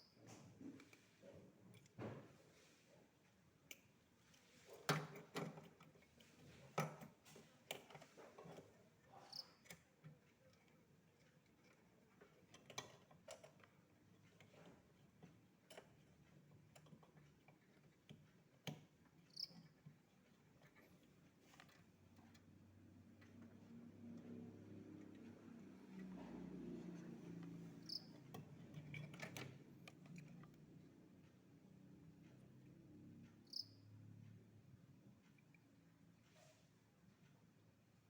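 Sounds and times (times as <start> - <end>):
light clicks and knocks: 0.2 - 33.6.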